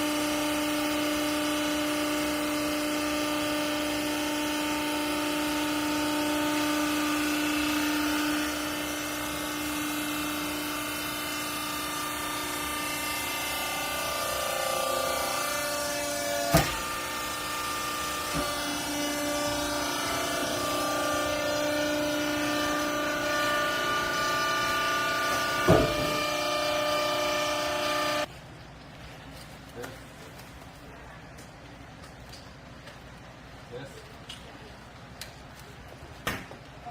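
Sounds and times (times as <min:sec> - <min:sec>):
electric motor and pump whining: 0:00.0 - 0:28.3
sharp knock: 0:25.6 - 0:26.2.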